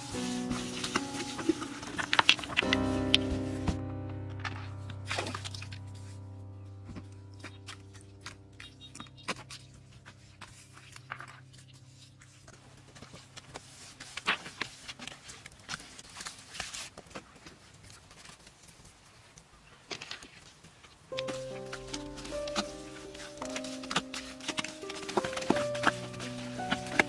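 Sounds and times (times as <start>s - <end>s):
faint background music: 0.0s - 14.7s, 21.1s - 27.0s
scraping and clicking of hand work: 0.1s - 2.8s, 7.4s - 27.0s.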